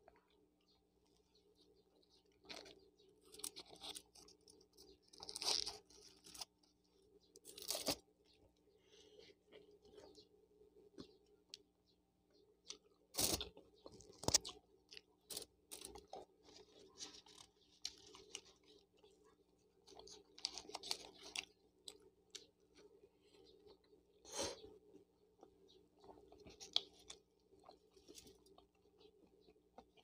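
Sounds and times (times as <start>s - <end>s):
person chewing food: 12.5s - 30.0s.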